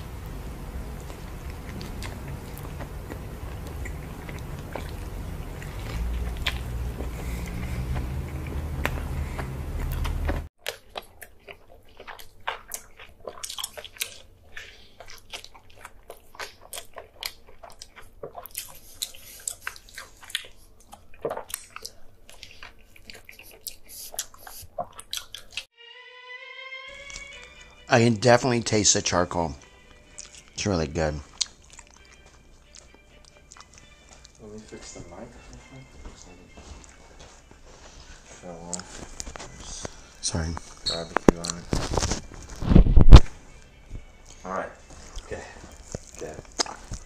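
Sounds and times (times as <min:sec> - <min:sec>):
biting and chewing soft food: 0:00.0 - 0:25.7, 0:29.6 - 0:34.9, 0:36.0 - 0:47.0
wet mouth clicks: 0:05.7 - 0:06.8, 0:07.4 - 0:25.7, 0:30.1 - 0:30.5, 0:31.3 - 0:34.3, 0:45.9 - 0:47.0.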